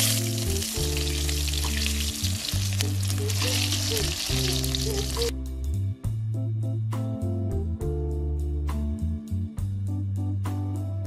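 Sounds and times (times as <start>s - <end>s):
vegetables sizzling in hot oil: 0.0s - 5.3s
background music: 0.0s - 11.0s.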